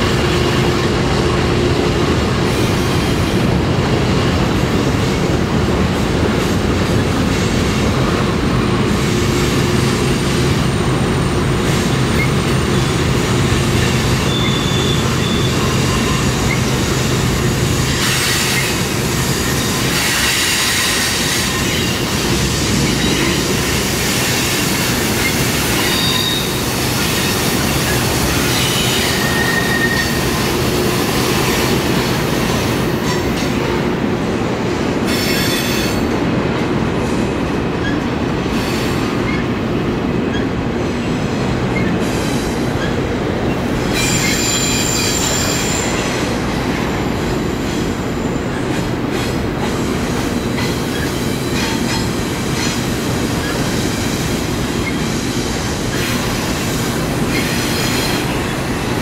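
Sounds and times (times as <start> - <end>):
freight train cars rolling past: 0.0 - 59.0
high-pitched wheel squeals: 14.2 - 16.7, 25.2 - 26.6, 28.5 - 30.2, 43.9 - 46.1.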